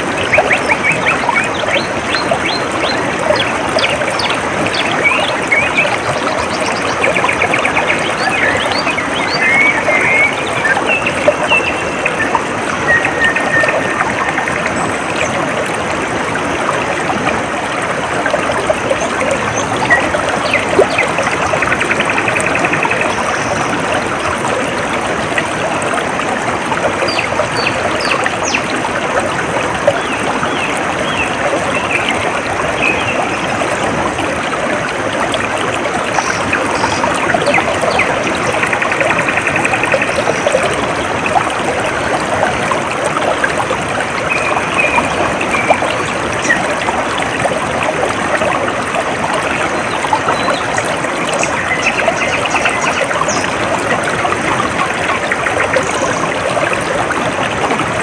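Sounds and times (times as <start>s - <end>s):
stream babbling over stones: 0.0s - 58.0s
birds chirping: 0.3s - 15.2s.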